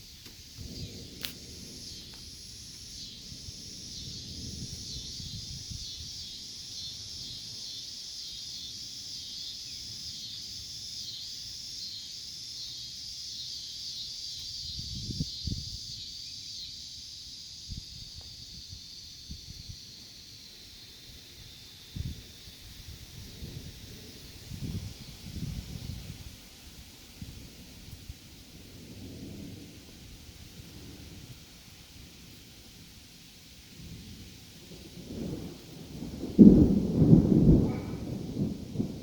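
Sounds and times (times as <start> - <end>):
insects chirping: 0.0 - 39.0
wind buffeting microphone: 0.3 - 6.3, 14.6 - 16.0, 21.9 - 32.8, 33.6 - 39.0.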